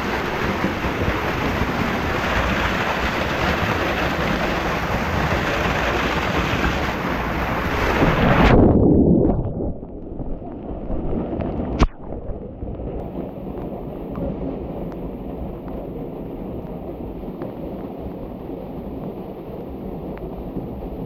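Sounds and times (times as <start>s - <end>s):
mountain stream rushing: 0.0s - 8.4s.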